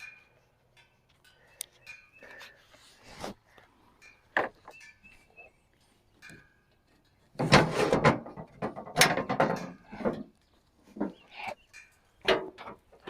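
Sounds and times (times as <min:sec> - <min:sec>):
metal parts clattering and scraping: 0:07.1 - 0:10.3.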